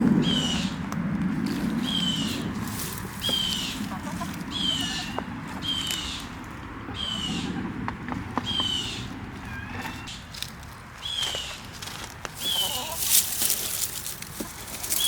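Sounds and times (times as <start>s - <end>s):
bird calling: 0.0s - 0.8s, 1.8s - 7.8s, 8.4s - 10.3s, 12.4s - 15.0s
low steady rumble: 0.0s - 11.0s.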